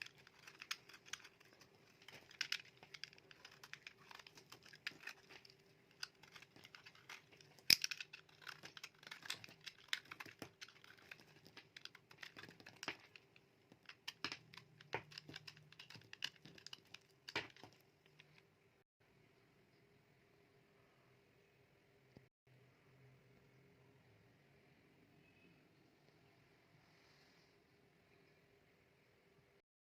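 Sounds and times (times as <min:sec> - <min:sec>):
knife cutting through soap: 0:00.0 - 0:13.2.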